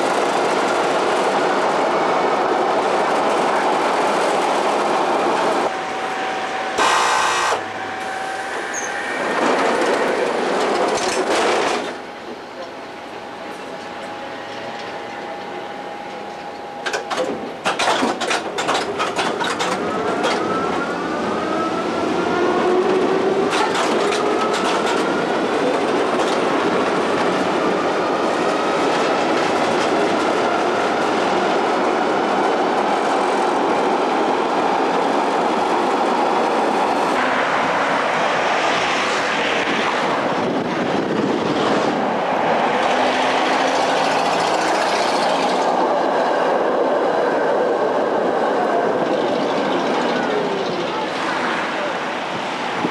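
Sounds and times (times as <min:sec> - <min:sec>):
train running on rails: 0:00.0 - 0:52.9
electric train whine rising: 0:05.4 - 0:12.2.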